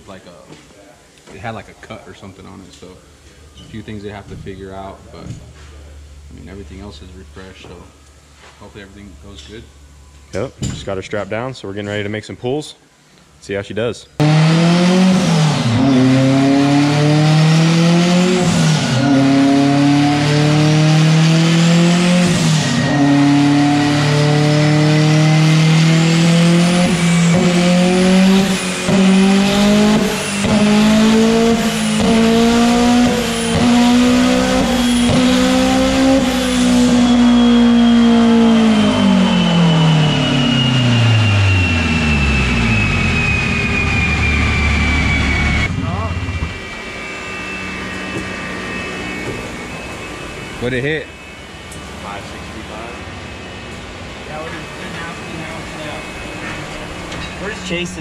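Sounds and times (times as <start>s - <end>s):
exhaust crackles: 0.0s - 12.3s, 13.0s - 58.0s
high whine of slowing rollers: 1.3s - 10.4s, 14.1s - 58.0s
car engine revving at full throttle: 14.2s - 58.0s.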